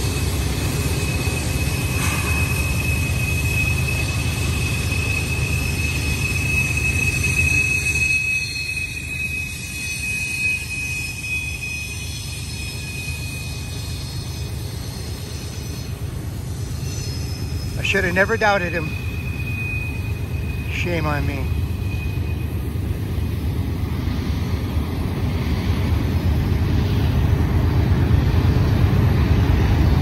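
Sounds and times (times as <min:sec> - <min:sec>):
high-pitched wheel squeal: 0:00.0 - 0:23.2
freight cars rumbling on rails: 0:00.0 - 0:30.0.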